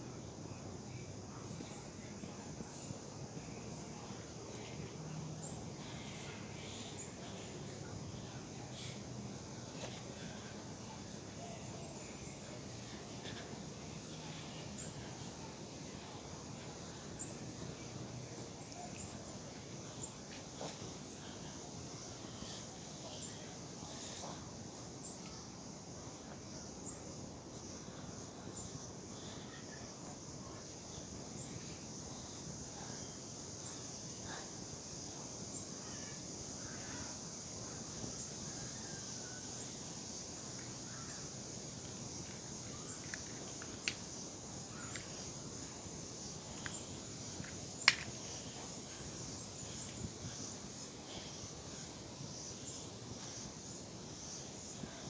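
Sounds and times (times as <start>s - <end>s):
background hiss: 0.0s - 55.0s
faint ticks: 41.8s - 49.0s.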